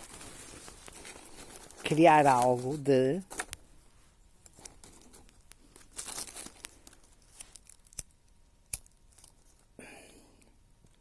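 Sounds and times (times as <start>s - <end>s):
sack crinkling and tearing: 5.6s - 8.0s.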